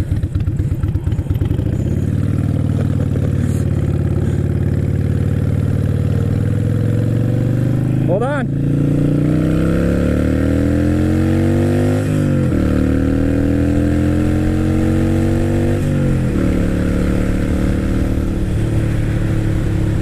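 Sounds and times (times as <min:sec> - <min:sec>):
motorcycle accelerating hard: 0:00.0 - 0:20.0.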